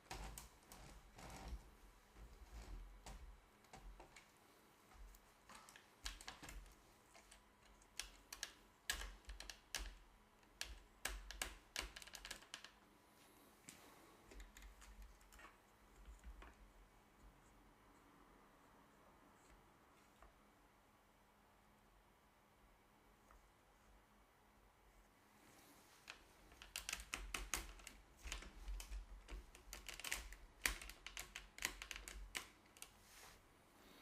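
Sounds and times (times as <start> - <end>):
light clicks and taps: 0.0 - 12.8, 26.0 - 33.0.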